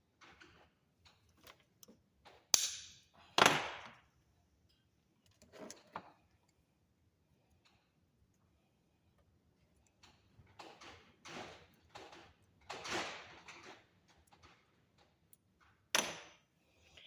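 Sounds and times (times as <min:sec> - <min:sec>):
wire cutters snapping wire: 0:02.5 - 0:03.0.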